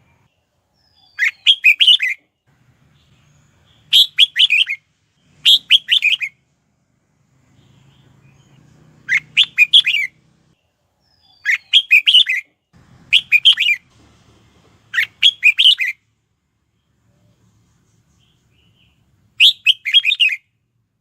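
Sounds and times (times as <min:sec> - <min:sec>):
bird singing warbled notes: 0:00.8 - 0:02.2, 0:02.9 - 0:06.4, 0:07.5 - 0:10.3, 0:11.0 - 0:12.5, 0:13.1 - 0:13.8, 0:14.9 - 0:16.0, 0:18.2 - 0:20.4.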